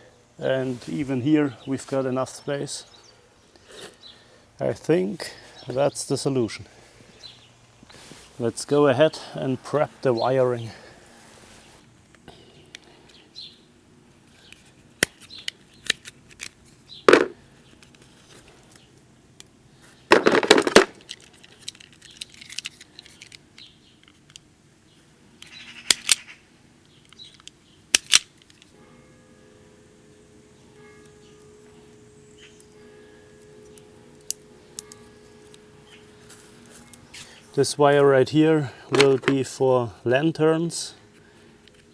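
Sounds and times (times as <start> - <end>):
wire cutters snipping: 39.0 - 39.4.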